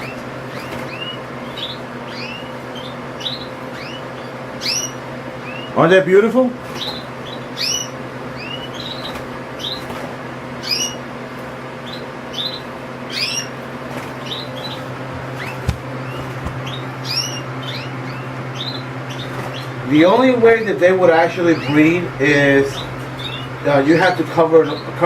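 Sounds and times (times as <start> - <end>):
bird chip calls: 0.0 - 5.8, 6.8 - 9.8, 10.6 - 11.1, 11.8 - 13.6, 14.2 - 20.3, 21.2 - 25.0
low hum: 14.2 - 25.0.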